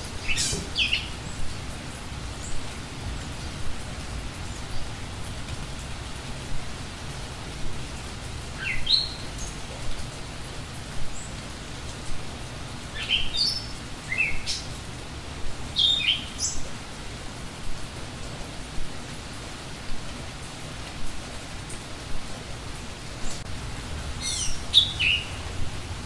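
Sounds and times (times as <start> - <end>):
steady rushing background noise: 0.0 - 26.0
songbird chirping: 0.2 - 1.6, 8.6 - 10.1, 12.9 - 14.8, 15.7 - 16.7, 24.2 - 25.8.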